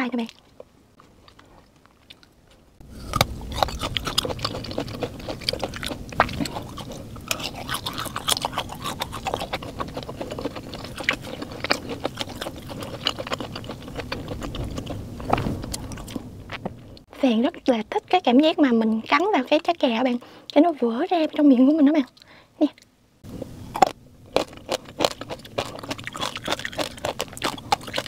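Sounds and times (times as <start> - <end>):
person chewing food: 0.3 - 17.1, 23.3 - 28.0.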